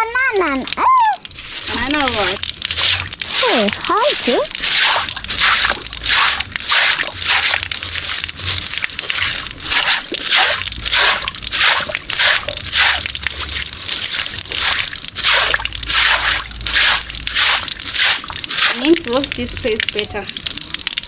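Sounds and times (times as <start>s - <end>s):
wet scrubbing by hand: 0.0s - 20.2s.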